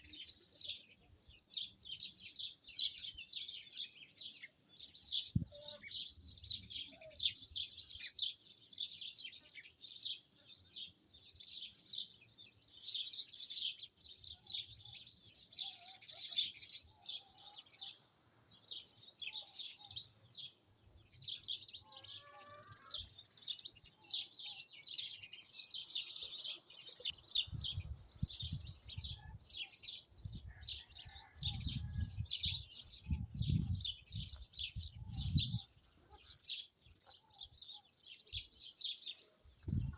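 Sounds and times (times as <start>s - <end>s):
small birds chirping: 0.0s - 39.9s
wind rumble on microphone: 27.3s - 29.5s, 30.2s - 30.8s, 31.4s - 35.7s, 39.6s - 39.9s.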